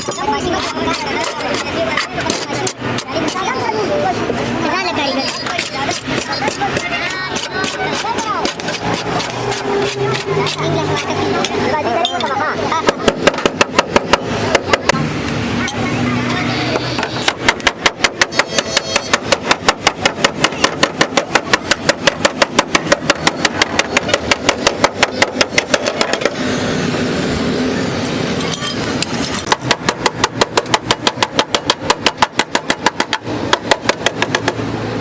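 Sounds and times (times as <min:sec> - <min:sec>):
hammer strikes on sheet metal: 0:12.8 - 0:15.0, 0:16.7 - 0:26.4, 0:29.4 - 0:34.6.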